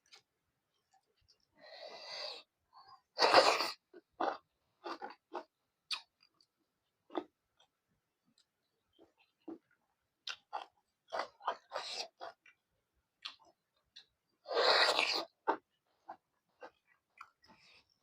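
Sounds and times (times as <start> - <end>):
wet chewing and lip-smacking: 4.2 - 7.7, 8.3 - 12.6, 13.2 - 14.3, 14.9 - 18.0.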